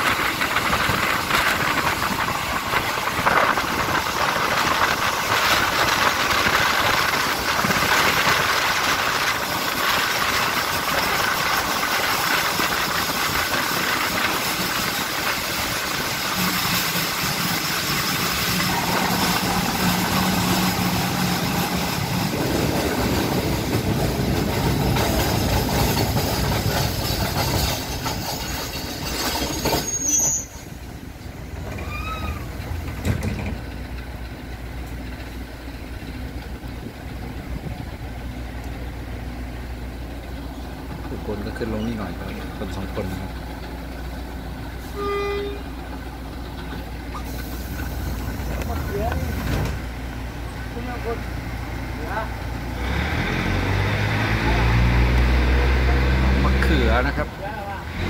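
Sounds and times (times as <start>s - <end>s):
train wheels rumbling and hissing: 0.0s - 58.0s.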